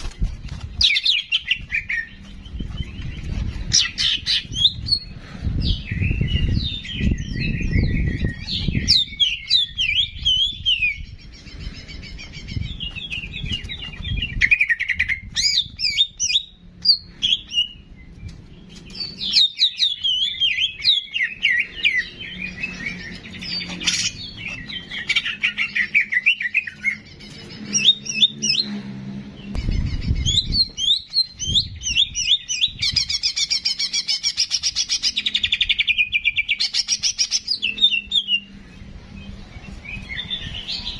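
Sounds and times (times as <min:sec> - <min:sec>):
songbird chirping and trilling: 0:00.0 - 0:40.9
low rumbles: 0:27.0 - 0:33.1.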